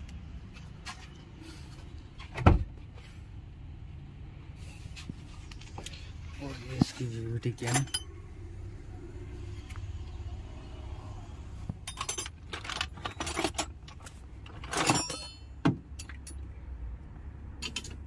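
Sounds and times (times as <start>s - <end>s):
metal parts and tools clattering: 6.4s - 8.2s, 11.7s - 16.5s, 17.6s - 18.0s.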